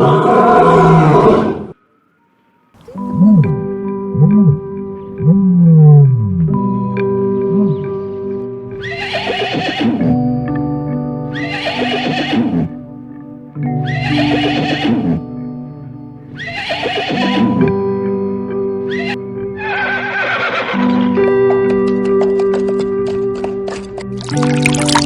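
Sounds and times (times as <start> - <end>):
background music with sustained tones: 1.7 - 25.0
horse whinnying: 2.8 - 3.6, 8.8 - 10.2, 11.3 - 12.8, 13.8 - 15.2, 16.4 - 17.7, 18.9 - 21.2.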